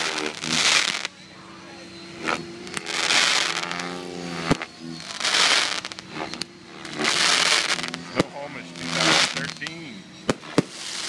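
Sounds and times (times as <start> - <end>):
fireworks hissing and crackling: 0.0 - 11.0
firework bang: 7.0 - 11.0.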